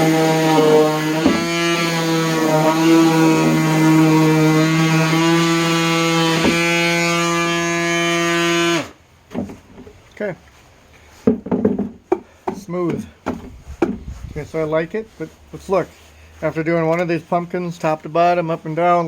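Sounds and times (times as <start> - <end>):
orbital sander motor hum: 0.0 - 8.9.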